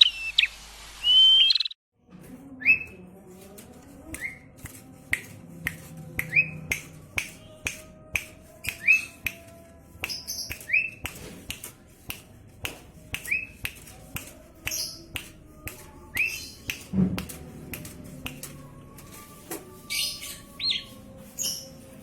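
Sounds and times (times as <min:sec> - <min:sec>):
songbird clicks and chirps: 0:10.0 - 0:11.2.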